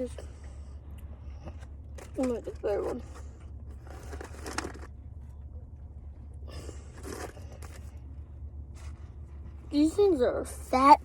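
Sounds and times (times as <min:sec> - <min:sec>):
low hum: 0:00.0 - 0:11.0
food container rustling: 0:03.8 - 0:04.9.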